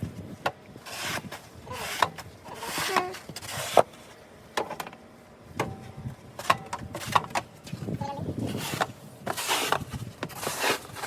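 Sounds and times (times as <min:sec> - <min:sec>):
shovel scraping snow: 0:00.8 - 0:04.0, 0:08.4 - 0:11.0.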